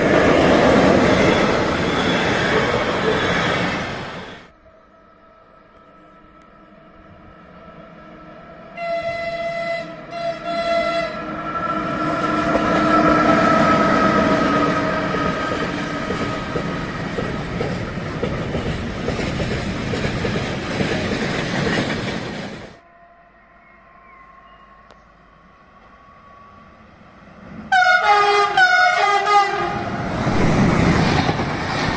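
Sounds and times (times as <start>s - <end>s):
train passing with rail noise: 0.0s - 31.9s
train horn blast: 8.6s - 15.4s, 22.8s - 26.9s, 27.7s - 30.1s.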